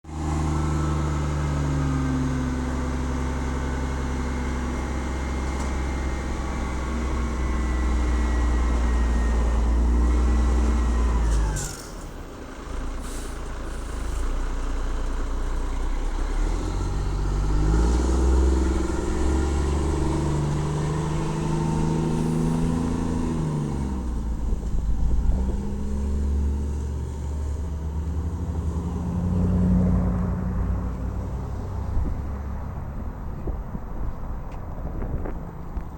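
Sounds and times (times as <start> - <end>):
garbage truck diesel engine: 0.0 - 35.9
short air hisses: 13.0 - 14.4.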